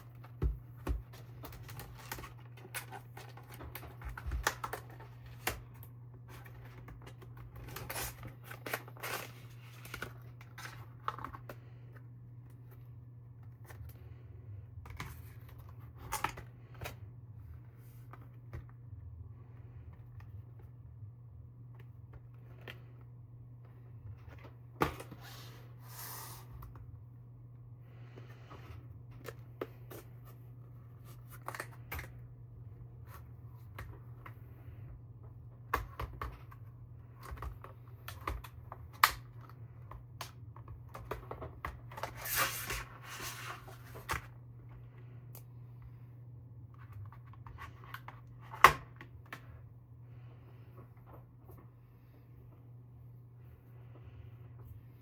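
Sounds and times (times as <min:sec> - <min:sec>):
steady low hum: 0:00.0 - 0:55.0
packaging rustling and tearing: 0:07.6 - 0:11.2.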